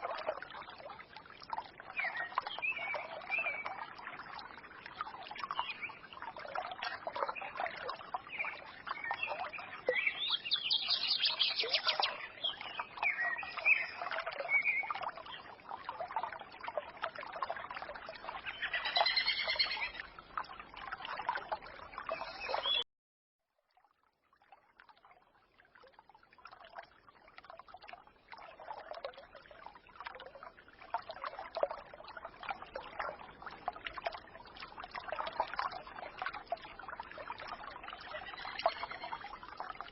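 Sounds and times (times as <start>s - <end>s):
stream trickling and gurgling: 0.0s - 39.9s
small birds chirping: 8.3s - 15.5s, 18.4s - 20.0s, 22.1s - 22.8s.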